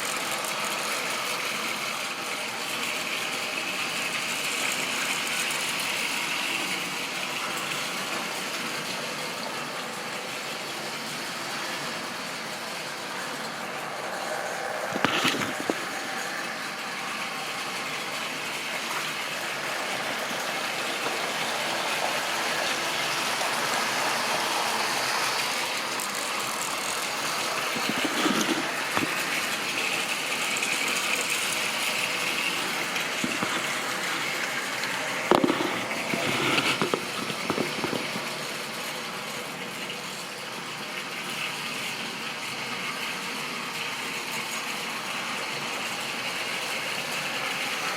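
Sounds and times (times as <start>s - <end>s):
model train whirring on track: 0.0s - 47.9s
sharp clicks and clatters: 14.9s - 16.3s, 25.0s - 30.0s, 30.6s - 38.6s.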